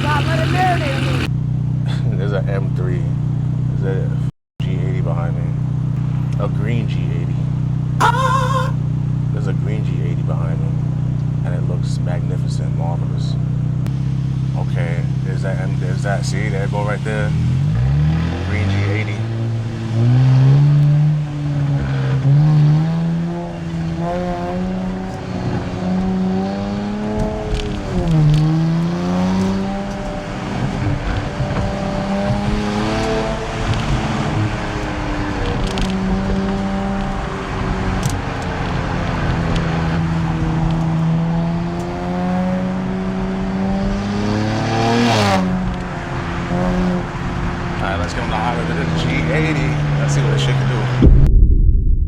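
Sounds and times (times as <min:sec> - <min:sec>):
car engine and exhaust revving: 0:00.0 - 0:08.0, 0:08.9 - 0:51.1.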